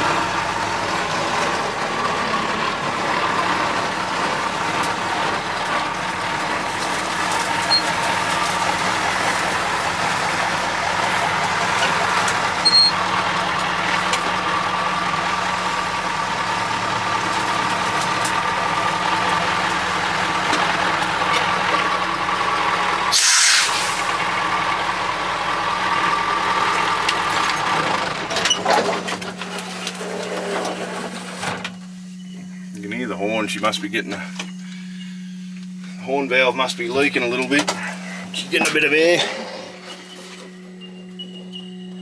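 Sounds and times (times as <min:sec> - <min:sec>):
diesel truck engine running: 0:00.0 - 0:42.0
air hiss: 0:23.1 - 0:24.2.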